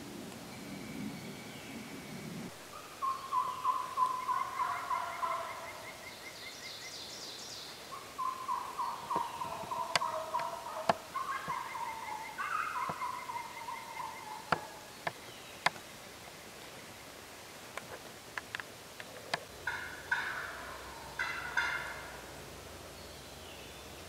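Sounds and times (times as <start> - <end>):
bird calling rapid falling notes: 2.7 - 6.7, 7.9 - 15.2.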